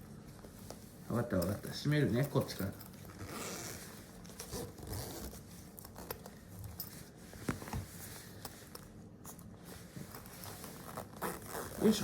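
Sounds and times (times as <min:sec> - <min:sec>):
fabric bag rustling: 0:02.6 - 0:12.0.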